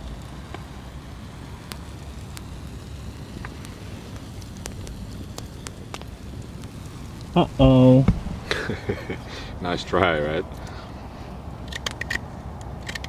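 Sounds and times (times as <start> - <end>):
low rumble: 0.0 - 12.8
campfire crackling and popping: 0.0 - 13.0.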